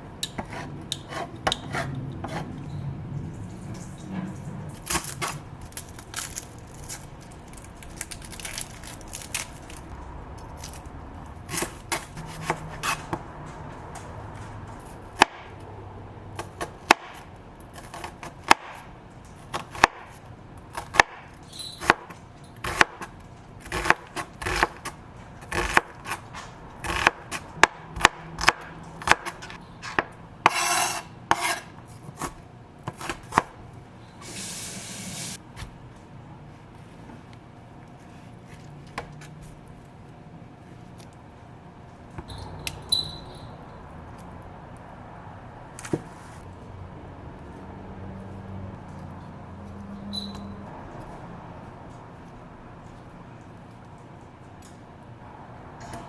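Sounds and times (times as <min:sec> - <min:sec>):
knife chopping on cutting board: 0:00.2 - 0:02.5, 0:11.5 - 0:13.7, 0:19.5 - 0:33.5.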